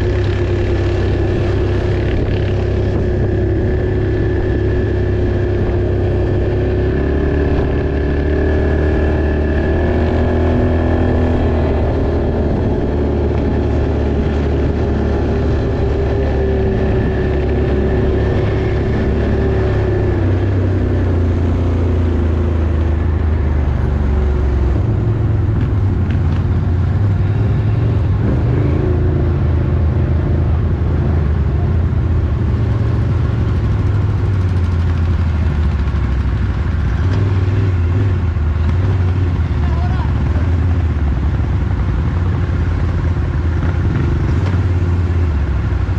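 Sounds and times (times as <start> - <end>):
off-road vehicle engine running: 0.0 - 45.9.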